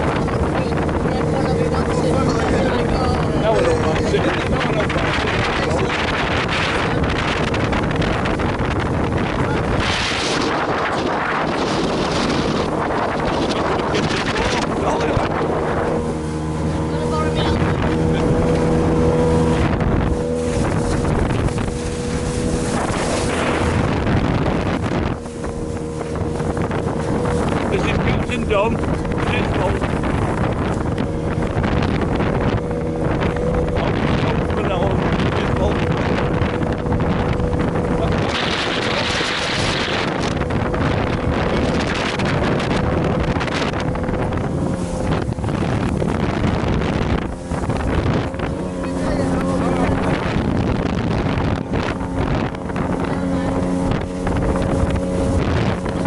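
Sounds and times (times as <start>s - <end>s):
boat engine running: 0.0s - 56.0s
water rushing: 0.0s - 56.0s
wind buffeting microphone: 0.0s - 56.0s.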